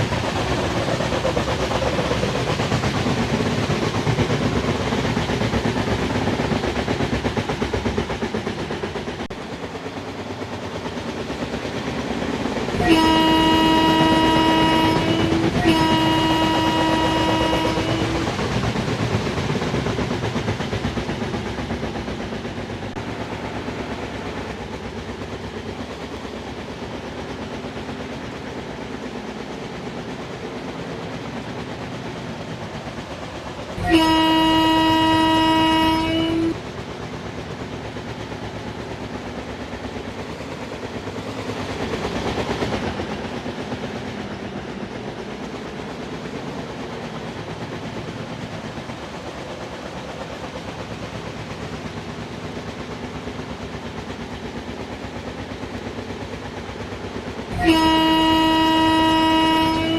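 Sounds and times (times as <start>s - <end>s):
train rumbling and wheel clatter: 0.0s - 59.9s
locomotive horn blast: 12.8s - 18.3s, 33.8s - 36.6s, 57.5s - 59.9s.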